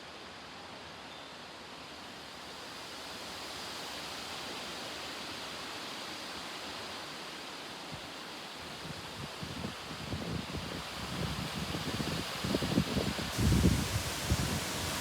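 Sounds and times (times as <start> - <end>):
heavy rain: 11.2 - 15.0
storm wind rushing: 11.7 - 15.0.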